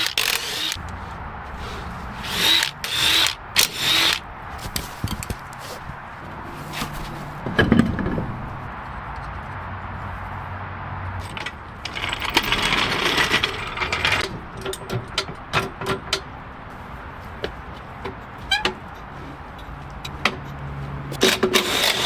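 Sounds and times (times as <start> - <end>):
rushing noise: 0.5 - 17.3
metallic clinks and knocks: 11.2 - 16.3.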